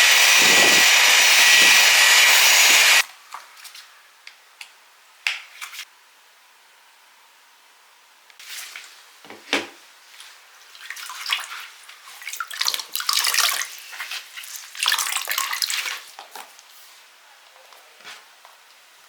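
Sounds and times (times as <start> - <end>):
water splashing and running: 10.7 - 16.2.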